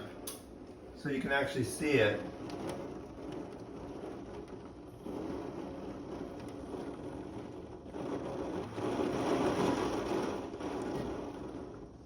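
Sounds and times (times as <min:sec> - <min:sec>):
heavy rain pouring: 0:02.3 - 0:11.8.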